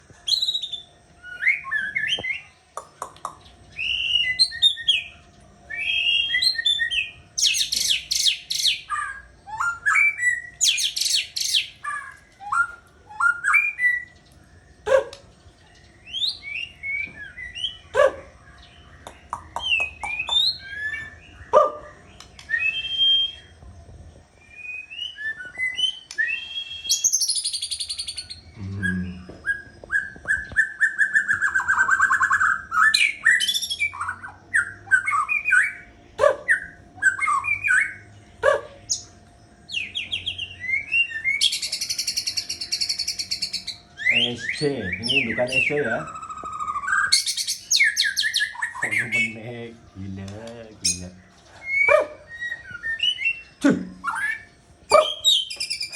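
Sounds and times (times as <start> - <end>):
bird singing whistled song: 0.2 - 23.6, 24.4 - 50.2, 50.8 - 55.9
buzzy bird trills: 24.5 - 55.9.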